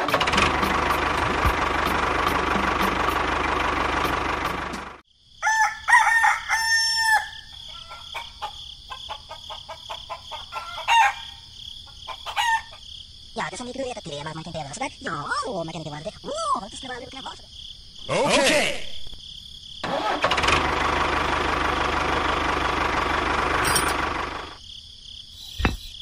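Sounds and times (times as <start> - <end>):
engine running loudly: 0.0 - 5.0
crickets chirring: 5.0 - 20.1, 23.7 - 26.0
rooster crowing: 5.4 - 12.8.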